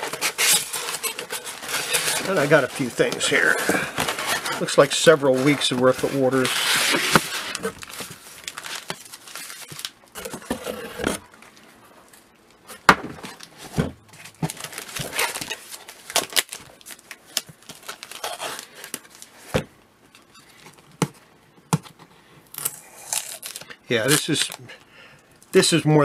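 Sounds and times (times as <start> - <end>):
packaging rustling and crinkling: 0.0 - 12.2, 13.2 - 19.5.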